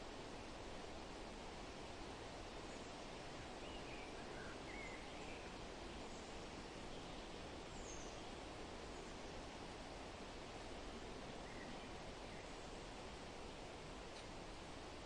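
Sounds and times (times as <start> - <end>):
wind rustling leaves: 0.0 - 15.0
faint bird chirps: 2.6 - 9.5, 11.3 - 12.8.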